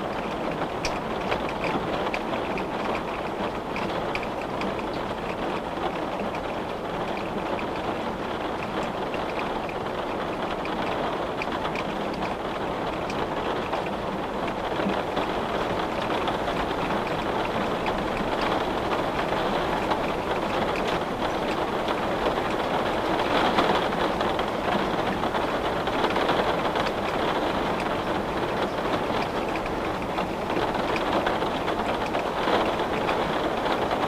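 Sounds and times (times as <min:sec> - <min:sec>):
rain on a window: 0:00.0 - 0:34.0
small drop ticks: 0:00.8 - 0:05.6.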